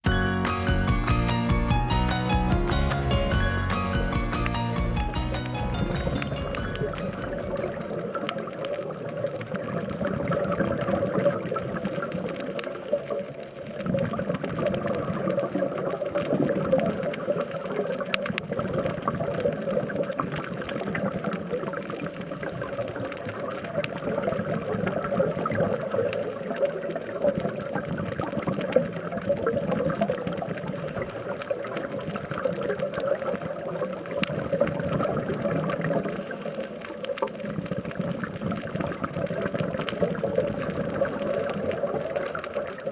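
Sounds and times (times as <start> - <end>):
underwater rushing water: 5.4 - 42.9
faint underwater clicks: 6.8 - 42.9
diver's bubbles: 13.8 - 42.9.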